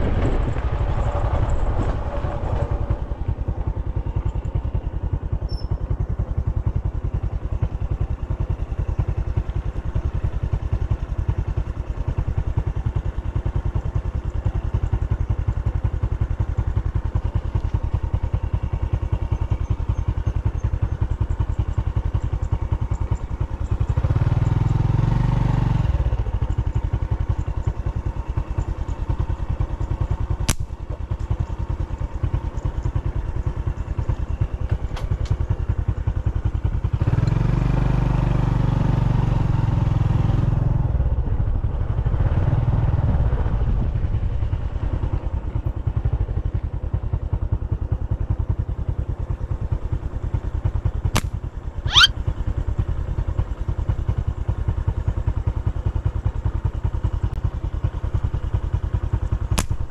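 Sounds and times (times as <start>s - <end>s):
small motorcycle engine running: 0.0s - 59.9s
sharp clicks: 59.6s - 59.9s.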